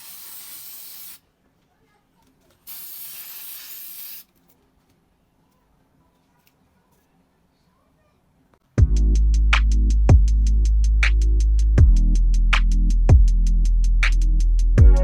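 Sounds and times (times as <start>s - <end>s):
aerosol spray paint hissing: 0.0s - 1.2s, 2.6s - 4.3s.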